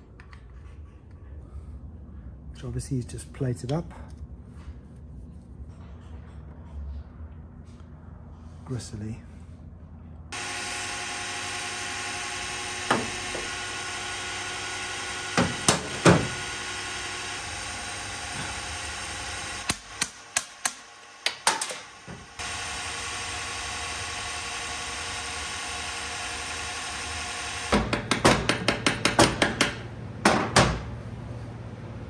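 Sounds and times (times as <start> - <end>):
steady humming background: 0.0 - 14.5.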